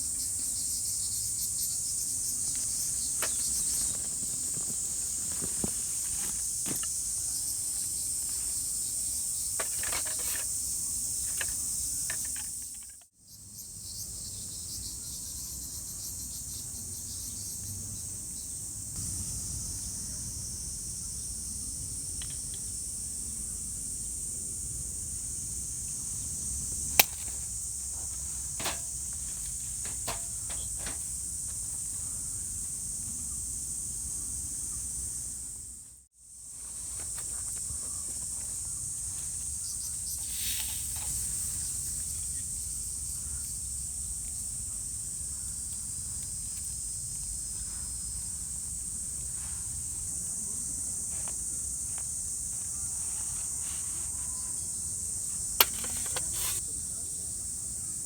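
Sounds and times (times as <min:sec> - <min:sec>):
insects chirping: 0:00.0 - 0:58.0
light clicks and knocks: 0:28.5 - 0:31.6.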